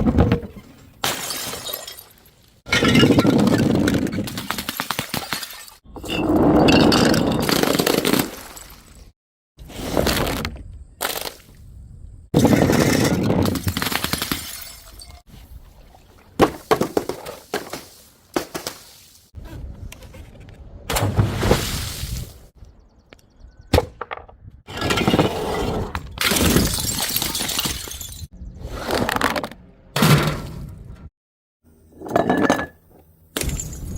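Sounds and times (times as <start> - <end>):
glass bottles smashing: 1.0 - 3.6, 14.1 - 15.2, 26.2 - 28.3.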